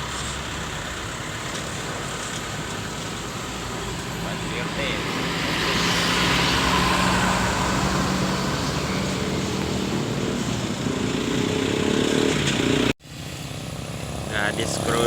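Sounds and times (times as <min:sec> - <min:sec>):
bus diesel engine running: 0:00.0 - 0:15.0
road traffic noise: 0:00.0 - 0:15.0.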